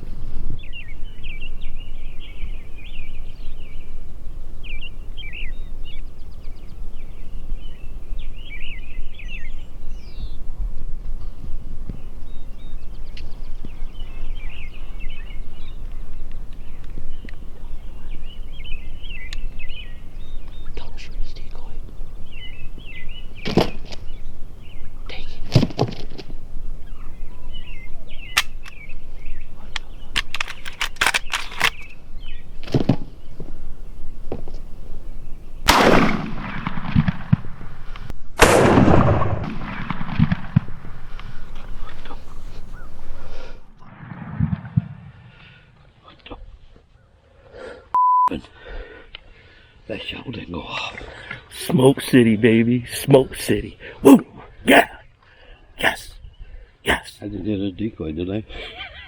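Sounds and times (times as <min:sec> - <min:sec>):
songbirds singing: 0:00.0 - 0:35.7, 0:41.2 - 0:43.7, 0:48.8 - 0:59.0
shotgun blasts echoing: 0:35.7 - 0:37.6, 0:38.4 - 0:41.1.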